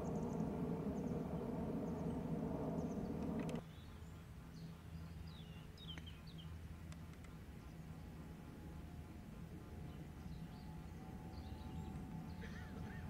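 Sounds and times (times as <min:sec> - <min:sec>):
low rumbling noise: 0:00.0 - 0:03.6
small birds chirping: 0:00.0 - 0:06.6
outdoor background: 0:00.0 - 0:13.0.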